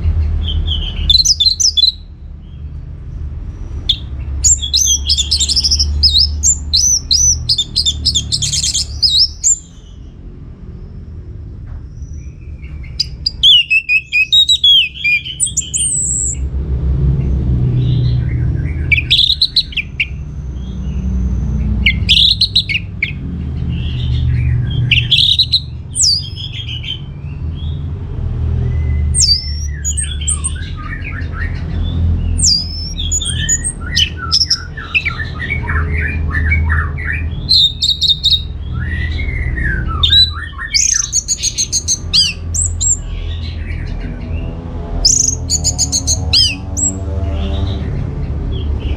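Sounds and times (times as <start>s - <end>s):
bird singing whistled phrases: 0.5s - 2.0s, 3.9s - 9.9s, 13.0s - 16.4s, 18.9s - 20.2s, 21.8s - 23.2s, 24.8s - 27.0s, 28.8s - 31.2s, 32.4s - 35.8s, 36.4s - 43.1s, 45.0s - 47.0s
low rumble: 14.9s - 48.9s.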